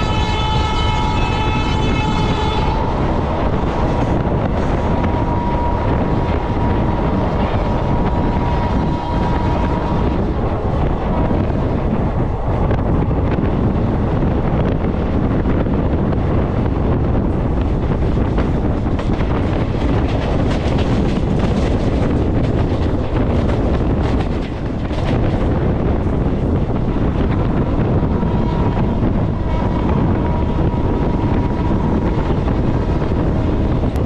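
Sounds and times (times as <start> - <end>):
train horn: 0.0 - 10.3
train rushing at speed: 0.0 - 34.0
wind buffeting microphone: 0.0 - 34.0.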